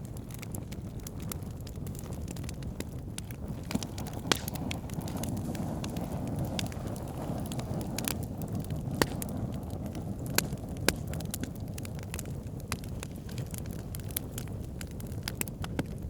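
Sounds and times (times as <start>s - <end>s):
campfire flames rushing: 0.0s - 16.0s
fire crackling and popping: 0.0s - 16.0s.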